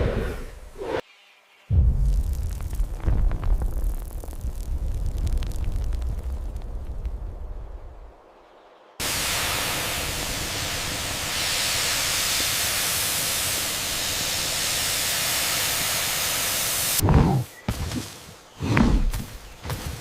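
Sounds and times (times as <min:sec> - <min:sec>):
loud steady hiss: 0:07.7 - 0:17.0.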